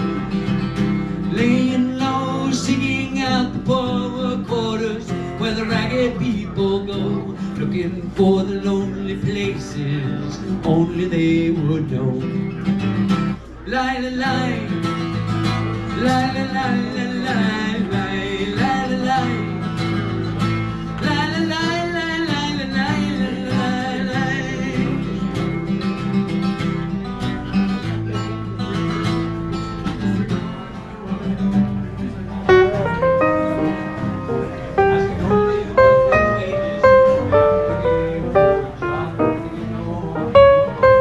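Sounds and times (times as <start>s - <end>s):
folk song with acoustic guitar: 0.0s - 41.0s
plucked guitar notes: 32.2s - 41.0s.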